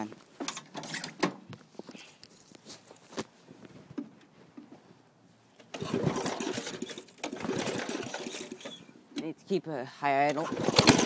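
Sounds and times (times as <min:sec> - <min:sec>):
lawn tractor engine starting: 0:05.6 - 0:09.3, 0:10.2 - 0:11.0.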